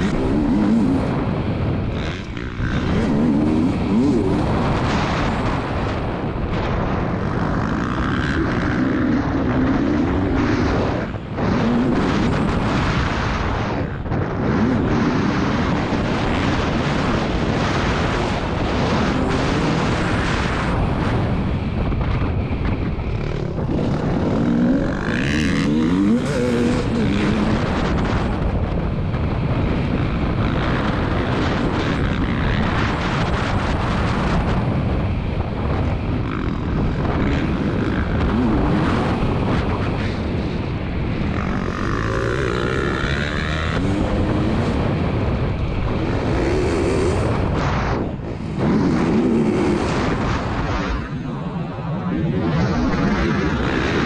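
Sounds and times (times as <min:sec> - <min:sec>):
two-stroke motocross engine revving: 0:00.0 - 0:06.0, 0:07.2 - 0:21.4, 0:23.0 - 0:28.4, 0:36.1 - 0:47.6
dense rushing noise: 0:00.0 - 0:54.0.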